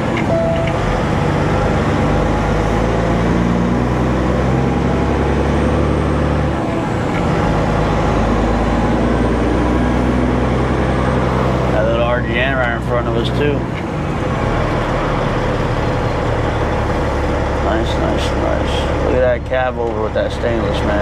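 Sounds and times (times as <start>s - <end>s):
road noise: 0.0s - 21.0s
truck diesel engine running: 0.0s - 21.0s.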